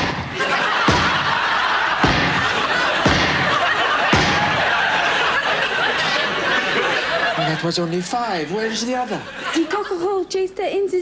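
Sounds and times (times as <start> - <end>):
explosion bangs: 0.0 - 5.0
audience laughing: 0.0 - 10.2.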